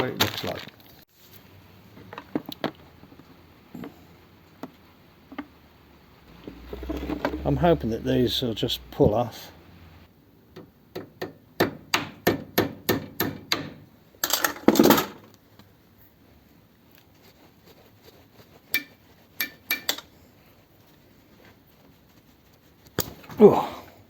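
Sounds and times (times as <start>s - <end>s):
sharp knocks on a fitting: 10.6s - 13.8s.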